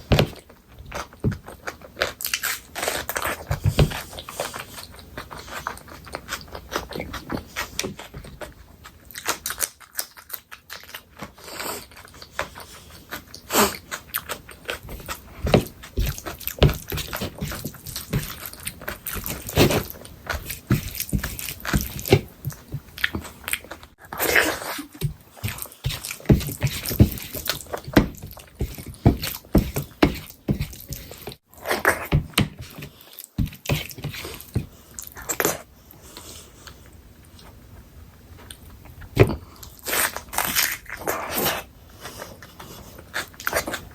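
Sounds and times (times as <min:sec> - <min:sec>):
food crunching: 0:00.4 - 0:35.6
chewing and biting: 0:00.9 - 0:32.1.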